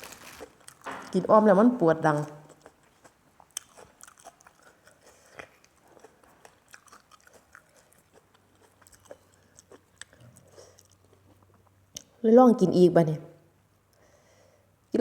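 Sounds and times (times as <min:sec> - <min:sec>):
chewing and biting food: 0:00.0 - 0:01.1, 0:02.1 - 0:11.8
small crunches: 0:00.0 - 0:01.2.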